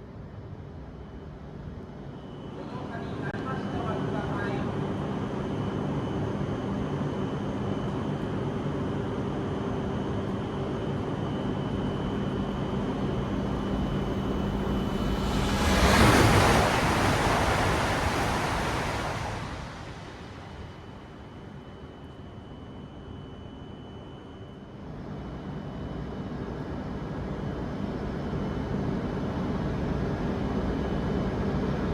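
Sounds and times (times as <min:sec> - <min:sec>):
high-speed train passing: 0:11.4 - 0:22.1.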